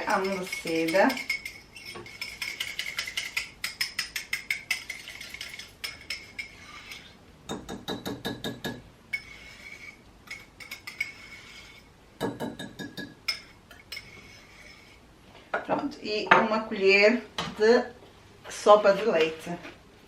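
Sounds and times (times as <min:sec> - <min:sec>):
metal spoon clinking against crockery: 0:00.0 - 0:06.6.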